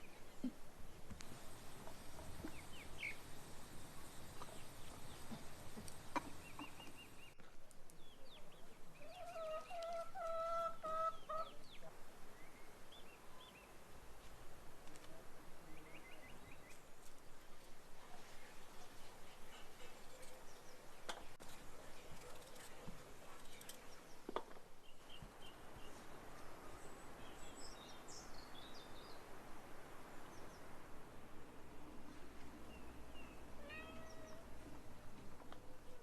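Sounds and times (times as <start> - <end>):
small birds chirping: 0.0 - 13.8, 18.1 - 29.3, 32.5 - 36.0.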